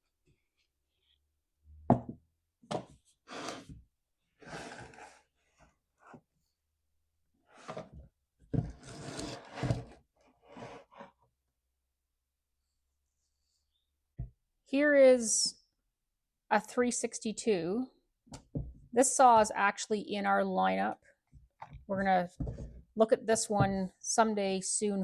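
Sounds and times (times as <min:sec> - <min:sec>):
tools knocking on workbench: 0:01.9 - 0:02.9.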